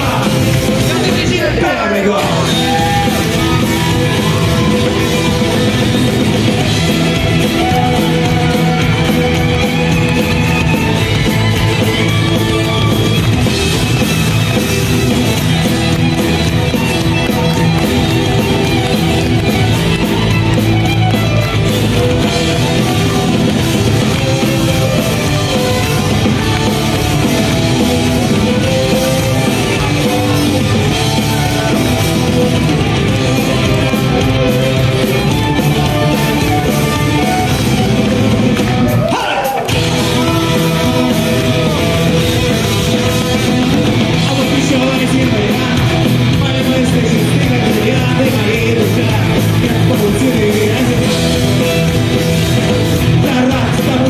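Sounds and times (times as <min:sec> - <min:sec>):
rock band playing live: 0:00.0 - 0:54.0
person singing: 0:38.6 - 0:54.0.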